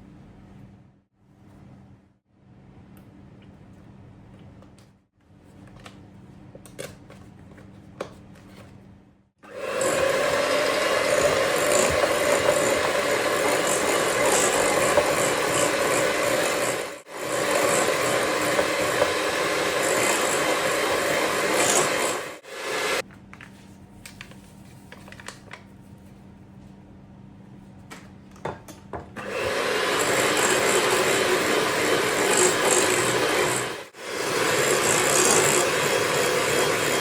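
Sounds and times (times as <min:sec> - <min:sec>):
kitchen appliance grinding: 0:09.4 - 0:23.0, 0:29.2 - 0:37.0.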